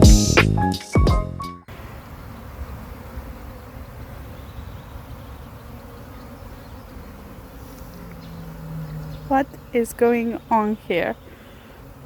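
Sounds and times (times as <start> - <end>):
bee buzzing close: 1.7 - 12.0
bees buzzing: 1.7 - 12.0.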